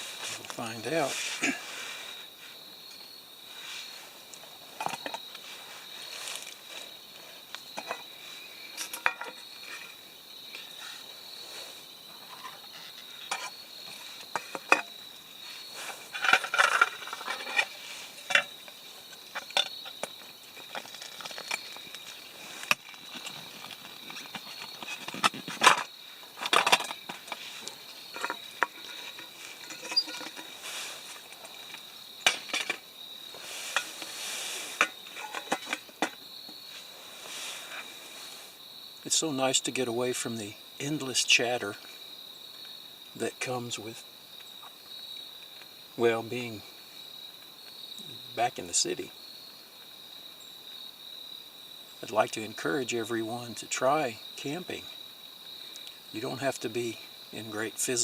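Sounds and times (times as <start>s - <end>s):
insects droning: 0.0s - 58.0s
metal camp pan clinking: 7.8s - 8.1s, 8.8s - 10.0s, 12.2s - 13.6s, 14.3s - 15.0s, 16.0s - 22.0s, 22.6s - 27.4s, 28.1s - 32.9s, 34.8s - 36.2s.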